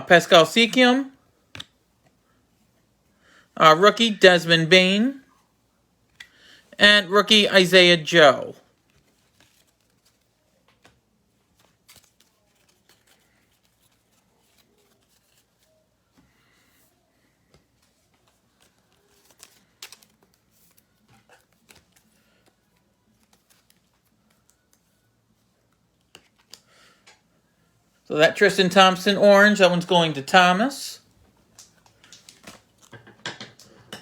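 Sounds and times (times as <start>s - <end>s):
cards rustling on a table: 8.7s - 27.3s, 31.4s - 33.9s.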